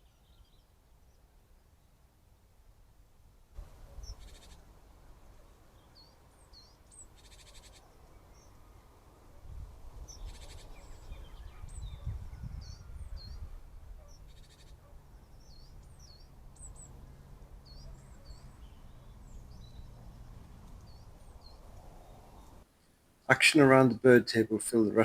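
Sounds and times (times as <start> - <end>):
small birds chirping: 0.0 - 2.0, 3.6 - 22.9
bird rattling calls: 3.7 - 4.6.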